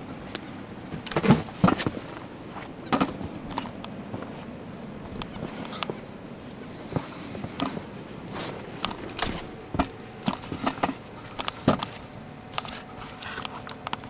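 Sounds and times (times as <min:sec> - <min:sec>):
footsteps crunching in snow: 0:05.3 - 0:11.3.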